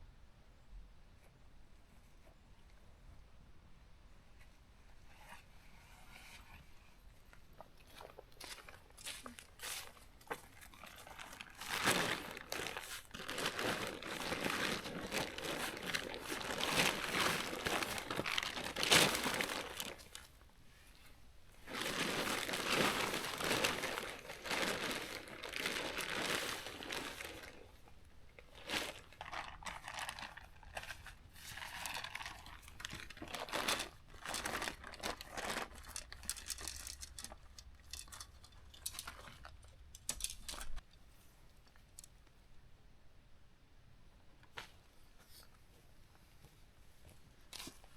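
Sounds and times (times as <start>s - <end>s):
tent fabric rustling and crinkling: 7.4s - 40.8s, 44.5s - 47.9s
light crackles and clicks: 35.8s - 42.4s.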